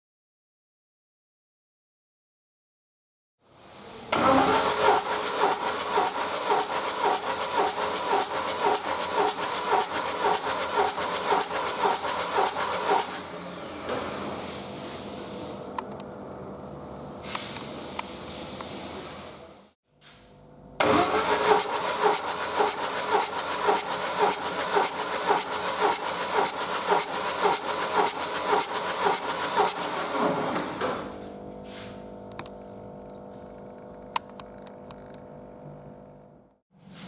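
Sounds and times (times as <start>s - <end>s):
starter motor cranking diesel engine: 4.1s - 13.6s, 20.8s - 30.4s.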